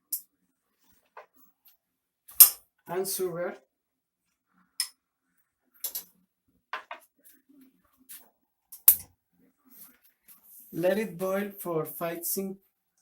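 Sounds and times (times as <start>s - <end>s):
kitchen utensils clicking and knocking: 5.8s - 6.1s.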